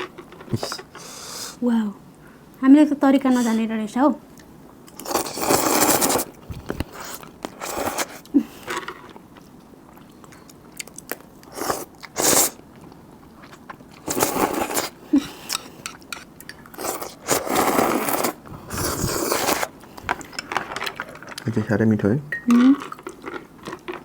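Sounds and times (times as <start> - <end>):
close-up chewing: 4.4 - 21.6, 22.7 - 24.0.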